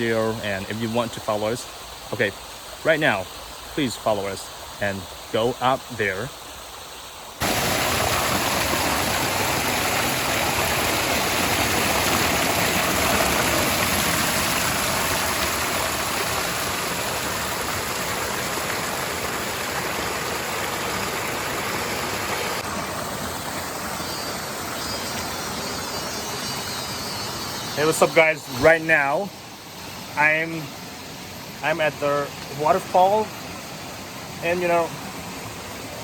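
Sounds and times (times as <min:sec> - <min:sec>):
waterfall rushing over rocks: 0:07.4 - 0:24.5.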